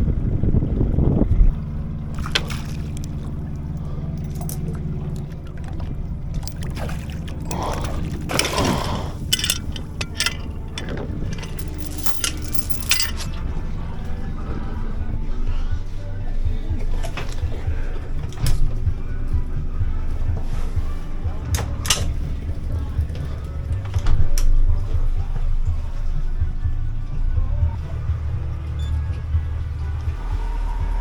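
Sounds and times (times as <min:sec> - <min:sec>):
boat engine idling: 0:00.0 - 0:31.0
sharp knocks and rattles: 0:06.4 - 0:13.4.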